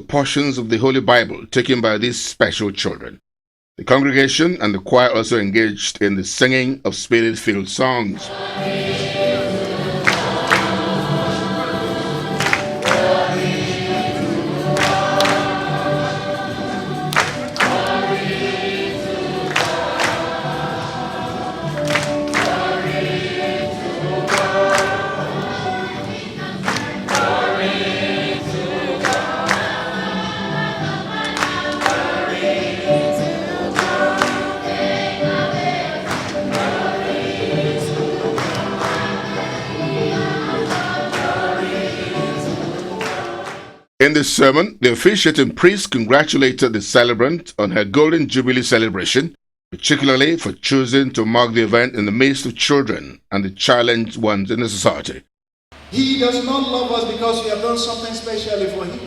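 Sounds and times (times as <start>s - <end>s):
choir and congregation singing: 8.2s - 43.9s
instrumental accompaniment: 8.2s - 43.9s.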